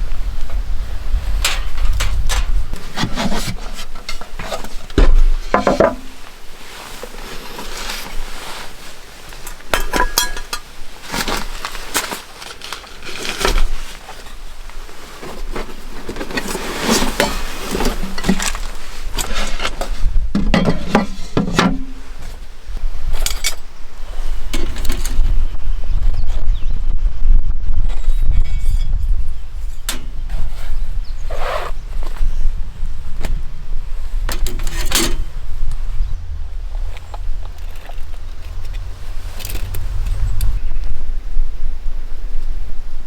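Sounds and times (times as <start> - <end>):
cookware clinking and clattering: 9.7 - 10.7.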